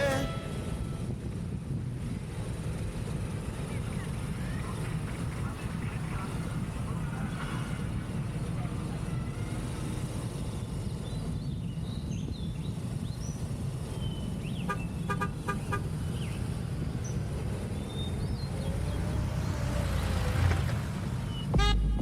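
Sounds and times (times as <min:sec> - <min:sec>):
motorcycle engine: 0:00.0 - 0:01.2, 0:19.6 - 0:22.0
short beeps: 0:21.6 - 0:22.0.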